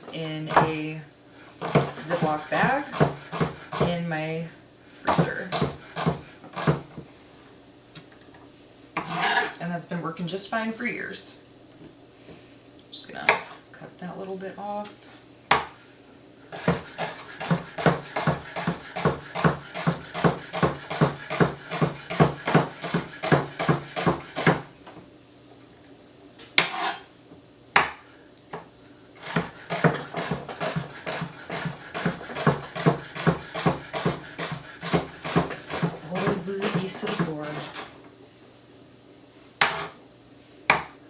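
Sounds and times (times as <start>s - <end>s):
knife chopping on cutting board: 0.5s - 0.8s, 1.6s - 4.0s, 5.1s - 6.9s, 15.5s - 15.7s, 16.6s - 24.7s, 26.6s - 27.0s, 29.2s - 37.9s, 39.6s - 40.0s, 40.7s - 41.0s.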